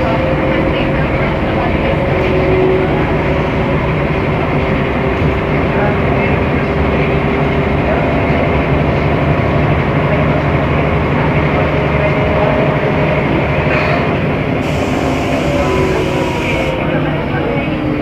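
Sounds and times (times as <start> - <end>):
bus engine hum: 0.0 - 18.0
road rumble: 0.0 - 18.0.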